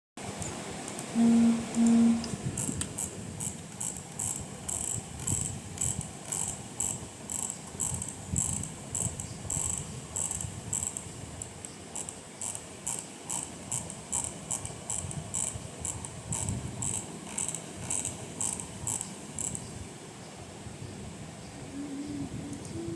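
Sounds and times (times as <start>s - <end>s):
sharp mechanism clicking: 1.8s - 19.7s.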